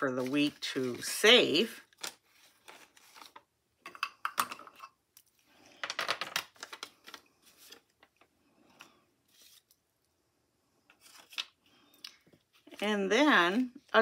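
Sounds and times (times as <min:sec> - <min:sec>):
paper rustling and crinkling: 0:00.0 - 0:03.5, 0:06.5 - 0:08.3.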